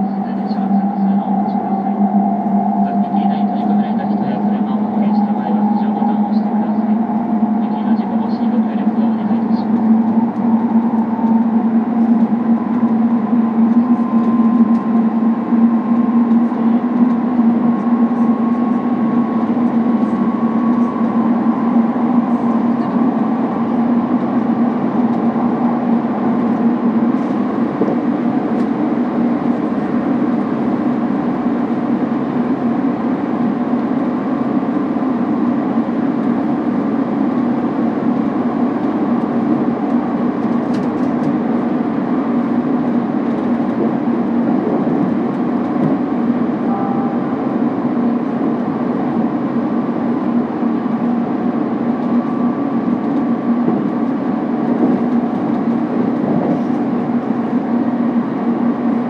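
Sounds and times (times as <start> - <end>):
faint high whine: 0.0 - 32.0
train running hum and rumble: 0.0 - 59.0.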